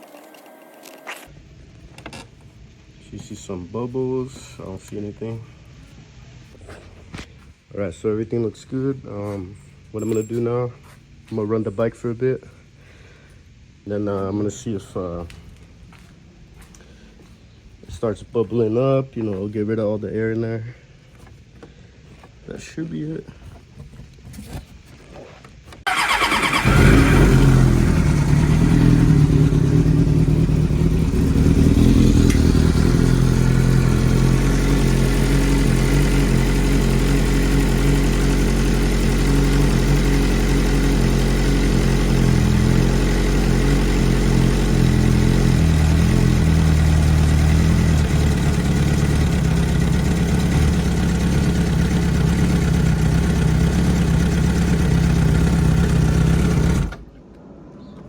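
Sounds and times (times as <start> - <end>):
motorcycle engine starting: 25.8 - 57.1
motorcycle engine idling: 25.9 - 57.0.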